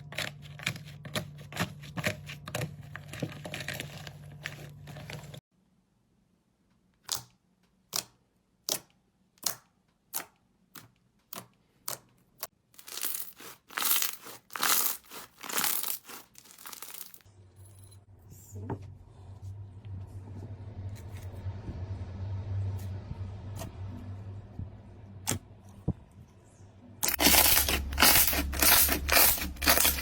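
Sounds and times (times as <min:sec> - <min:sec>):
low steady hum: 0:17.3 - 0:30.0.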